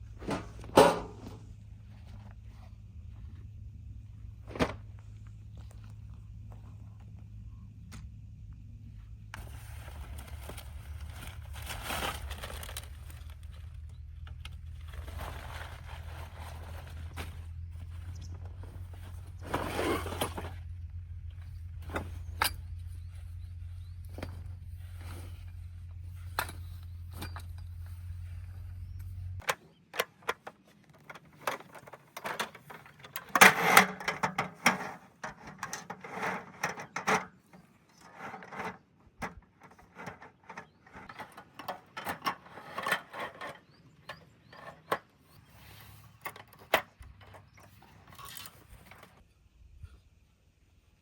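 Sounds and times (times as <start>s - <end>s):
low steady hum: 0.0s - 30.0s
objects being handled: 21.3s - 49.3s.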